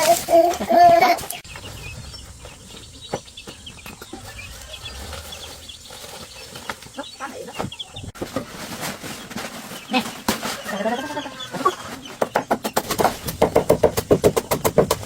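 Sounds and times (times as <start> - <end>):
small birds chirping: 0.0 - 15.0
knocks and clicks: 12.2 - 15.0.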